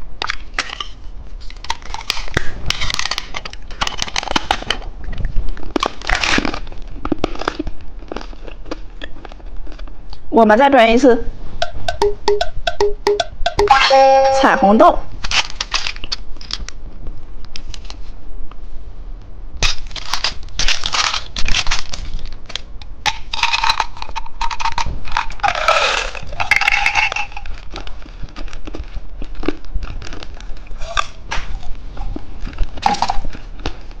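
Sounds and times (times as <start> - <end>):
plastic packaging crinkling: 5.4 - 9.8, 15.2 - 16.8, 19.6 - 34.0.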